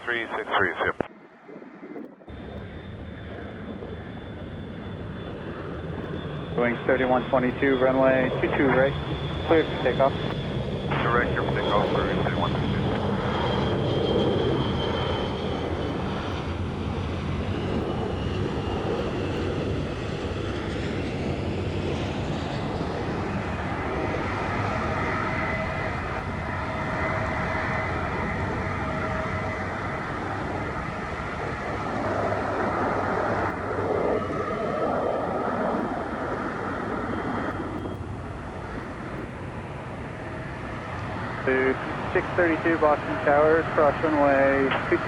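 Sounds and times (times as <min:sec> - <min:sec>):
faint whining engine tones: 0:00.0 - 0:45.0
jet airliner engine rumble: 0:00.0 - 0:45.0.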